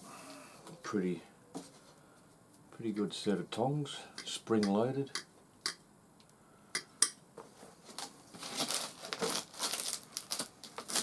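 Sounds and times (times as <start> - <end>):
packaging crinkling and rustling: 7.7 - 11.0.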